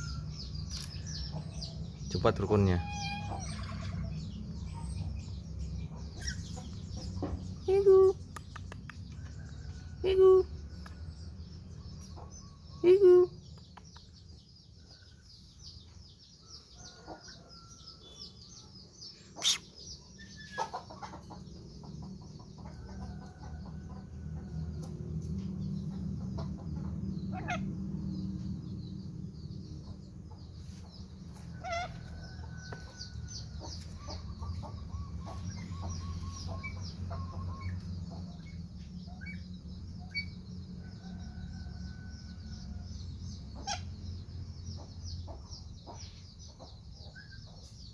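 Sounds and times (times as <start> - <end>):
birds chirping and whistling: 0.0 - 8.3, 18.0 - 22.4, 25.6 - 47.9
steady low rumble: 21.1 - 47.1.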